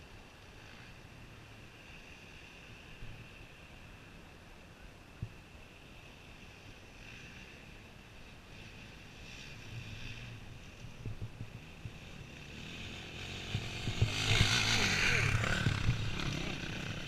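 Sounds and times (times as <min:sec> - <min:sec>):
distant motorcycle engine: 0:06.0 - 0:17.0.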